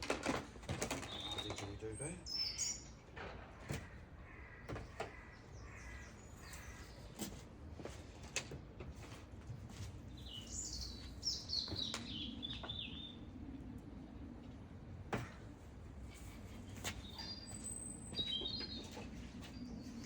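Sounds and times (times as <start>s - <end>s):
songbird chirping: 10.2s - 13.3s, 16.9s - 20.0s.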